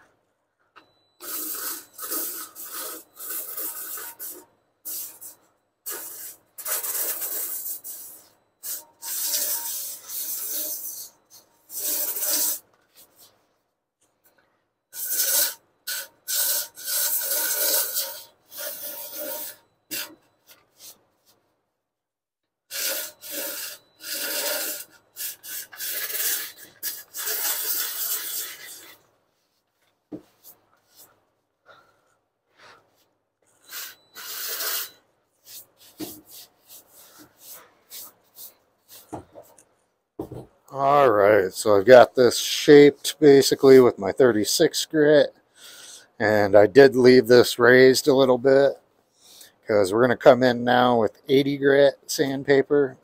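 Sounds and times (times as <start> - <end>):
sandpaper rasping on filler: 1.2 - 13.3, 15.0 - 21.3, 22.7 - 29.6, 32.6 - 39.2.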